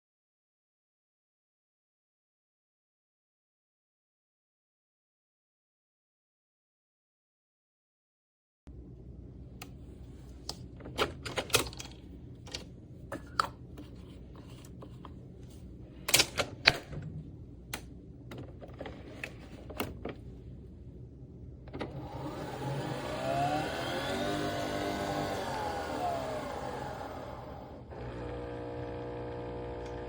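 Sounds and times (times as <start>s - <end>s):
coffee machine motor whirring: 21.7s - 30.0s.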